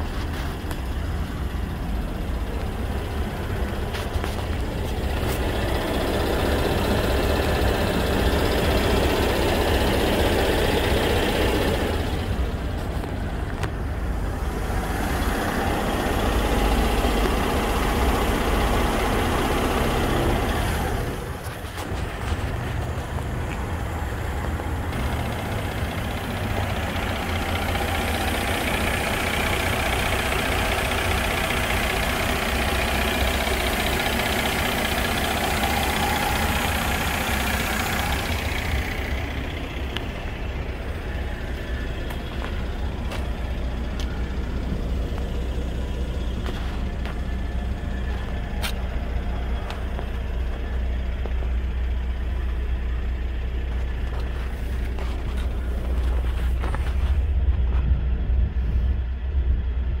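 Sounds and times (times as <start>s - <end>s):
car engine idling: 0.0s - 60.0s.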